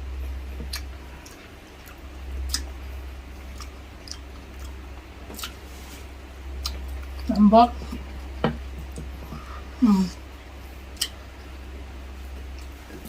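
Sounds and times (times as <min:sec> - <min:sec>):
person chewing: 0:00.6 - 0:08.2, 0:10.9 - 0:11.5
wet mouth clicks and smacks: 0:00.7 - 0:02.7, 0:03.5 - 0:05.6, 0:11.0 - 0:11.2.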